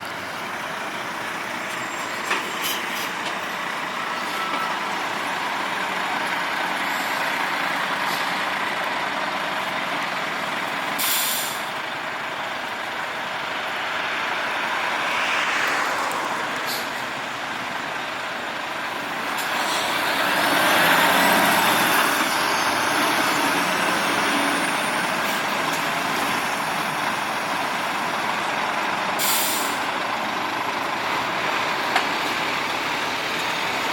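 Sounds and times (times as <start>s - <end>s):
truck engine running: 0.0s - 15.0s
road noise: 0.0s - 33.9s
air brake hisses: 11.0s - 11.8s, 29.2s - 29.9s.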